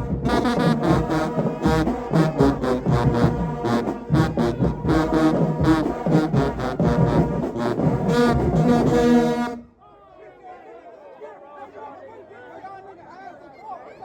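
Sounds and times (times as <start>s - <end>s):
driving drum beat: 0.0s - 9.2s
marching band brass: 0.0s - 9.7s.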